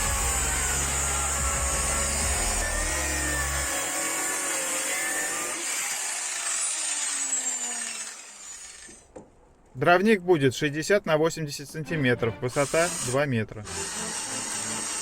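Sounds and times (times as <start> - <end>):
electric saw cutting wood: 0.0 - 9.1, 12.5 - 15.0.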